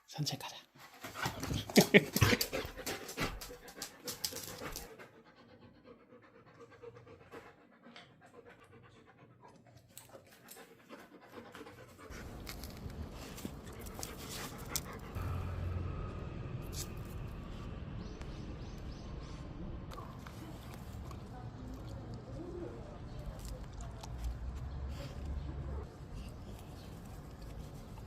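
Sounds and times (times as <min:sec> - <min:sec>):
dog panting: 0:00.8 - 0:15.4
low steady rumble: 0:12.1 - 0:22.4.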